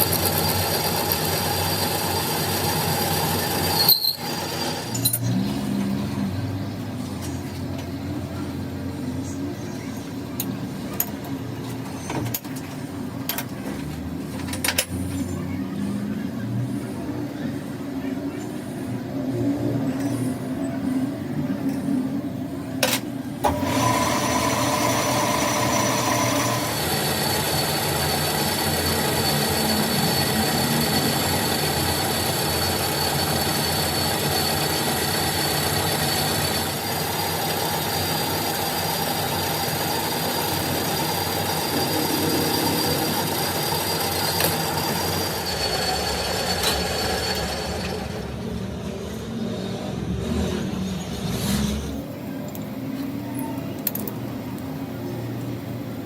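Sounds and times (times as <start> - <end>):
broad mechanical noise: 0.0 - 56.0
machinery whine: 16.1 - 56.0.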